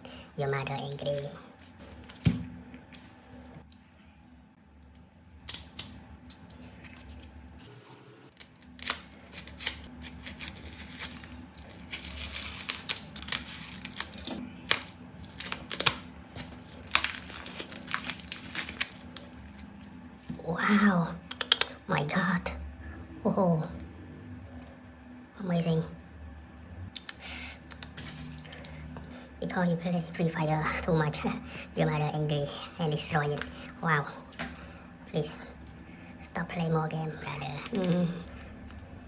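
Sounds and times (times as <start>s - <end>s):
glass and plastic parts clicking: 5.5s - 7.3s, 8.4s - 19.6s, 27.7s - 28.8s, 37.2s - 38.8s.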